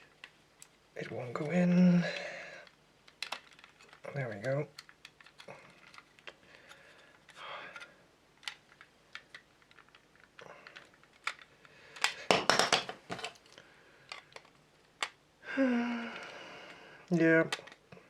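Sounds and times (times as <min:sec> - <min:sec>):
plastic parts clicking and tapping: 0:02.6 - 0:15.2, 0:17.5 - 0:17.9
rough handling noise: 0:08.4 - 0:14.6.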